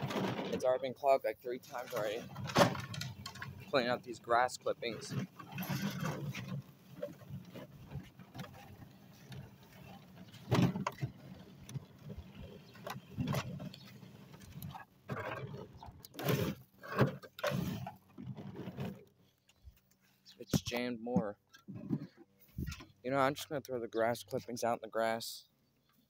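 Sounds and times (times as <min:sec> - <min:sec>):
push sweeper rustling and scraping: 0:00.0 - 0:20.8.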